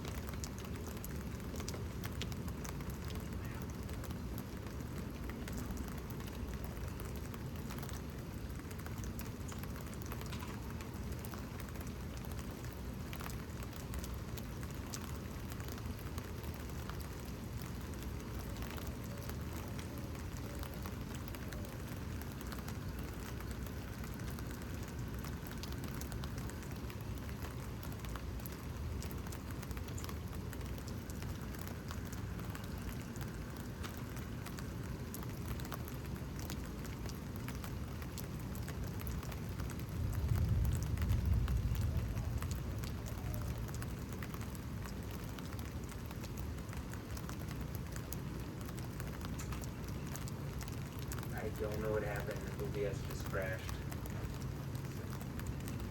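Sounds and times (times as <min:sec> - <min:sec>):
steady rain falling: 0:00.0 - 0:55.9
water drips and ticks: 0:00.0 - 0:55.9
low thunder rumbling: 0:39.9 - 0:43.4.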